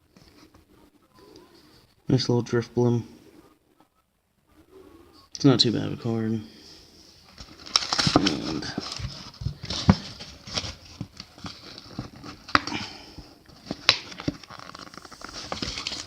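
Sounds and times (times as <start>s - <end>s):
plastic packaging crinkling: 7.3s - 12.8s, 13.4s - 16.0s.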